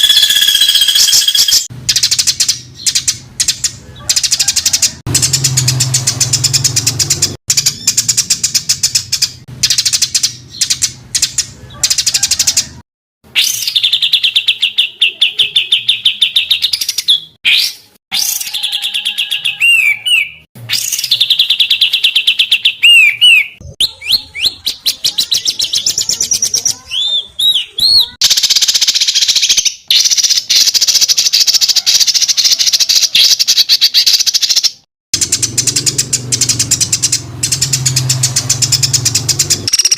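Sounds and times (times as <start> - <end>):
bird up-and-down whistles: 0.0 - 3.1, 15.5 - 24.8
songbird rattling trills: 0.0 - 12.7, 28.2 - 39.9.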